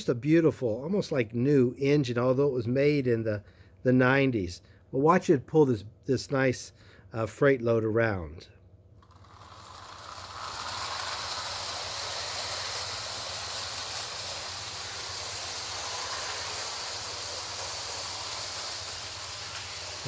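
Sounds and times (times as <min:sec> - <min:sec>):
model train rolling on rails: 0:09.0 - 0:20.0.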